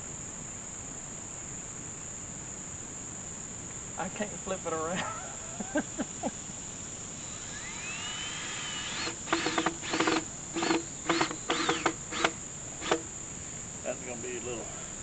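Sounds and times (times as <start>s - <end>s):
crickets and insects calling: 0.0s - 15.0s
power drill whining: 7.2s - 13.1s.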